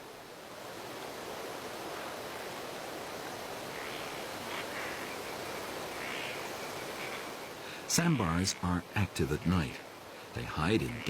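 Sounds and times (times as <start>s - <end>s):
outdoor field ambience hiss: 0.0s - 11.0s.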